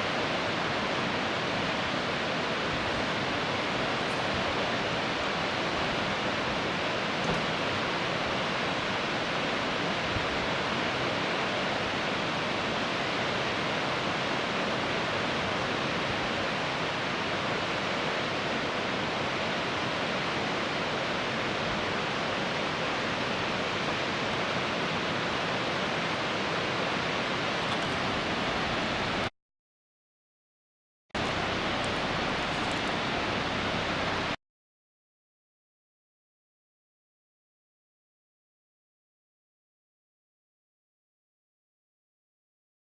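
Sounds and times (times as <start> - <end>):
waterfall rushing: 0.0 - 29.3, 31.2 - 34.4.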